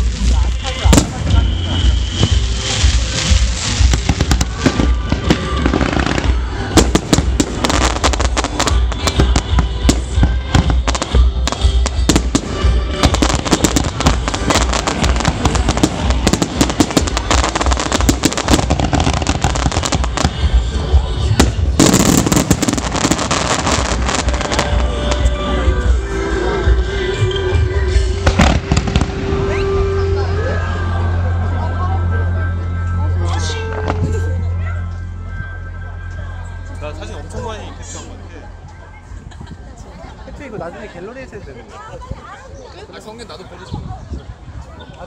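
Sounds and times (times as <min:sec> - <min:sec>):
fireworks bangs and crackles: 0:00.0 - 0:26.0, 0:26.7 - 0:29.9.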